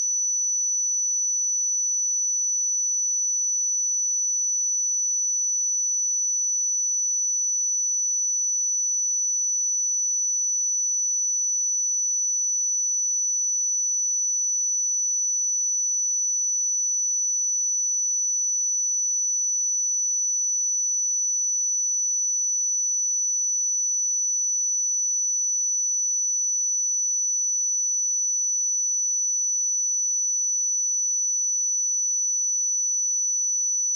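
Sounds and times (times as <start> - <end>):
high-pitched sine test tone: 15.6 - 33.9.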